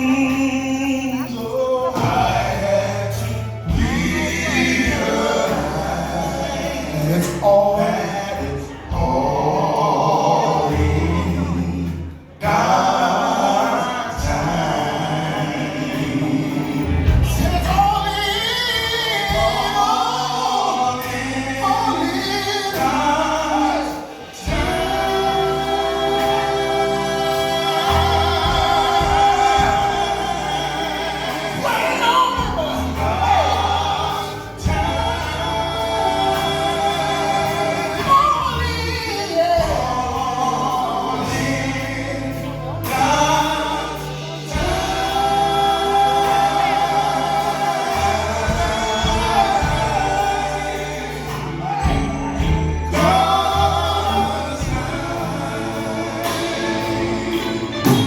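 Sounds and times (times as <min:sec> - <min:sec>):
bass accompaniment: 0:00.0 - 0:58.0
choir singing in harmony: 0:00.0 - 0:58.0
lead voice singing: 0:00.0 - 0:58.0.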